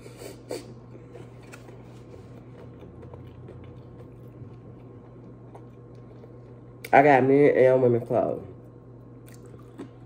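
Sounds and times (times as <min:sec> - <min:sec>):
steady low hum: 0:00.0 - 0:10.0
faint chewing: 0:00.6 - 0:06.9, 0:09.2 - 0:10.0.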